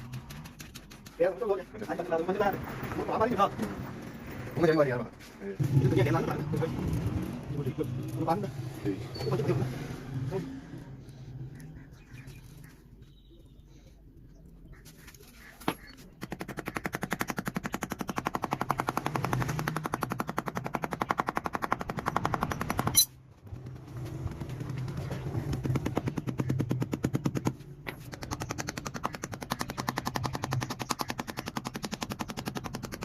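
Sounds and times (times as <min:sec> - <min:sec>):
machine rattling with sharp pops: 0:15.8 - 0:33.0.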